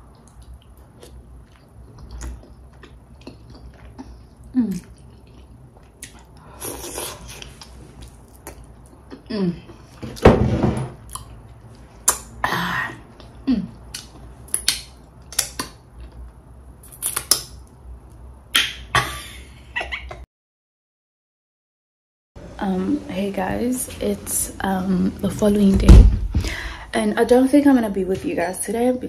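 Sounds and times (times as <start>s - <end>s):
chewing and lip smacks: 0.0s - 9.3s, 13.1s - 18.2s.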